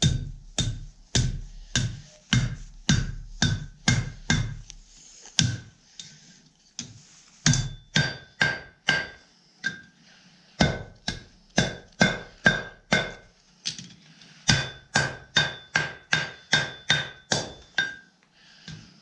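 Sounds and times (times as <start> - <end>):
hammer striking metal on anvil: 0.0 - 4.6, 5.4 - 6.1, 7.4 - 9.9, 10.6 - 13.3, 14.5 - 18.1.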